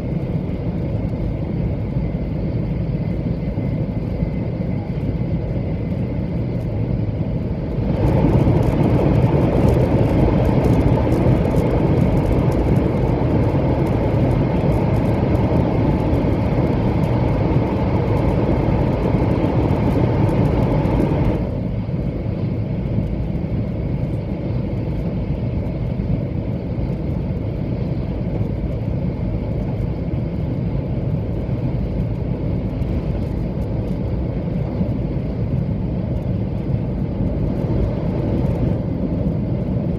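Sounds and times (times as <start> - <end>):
train running rumble from inside: 0.0 - 39.9.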